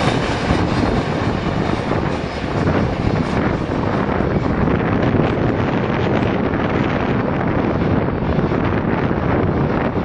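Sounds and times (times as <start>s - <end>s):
freight train wheels rumbling: 0.0s - 10.0s.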